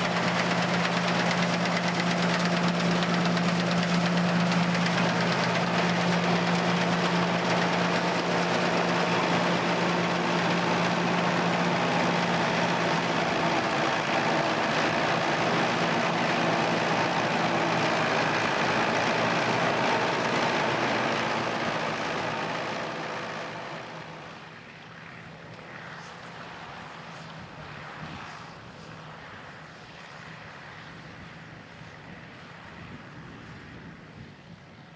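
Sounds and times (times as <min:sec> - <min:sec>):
farm machine engine running: 0:00.0 - 0:24.5.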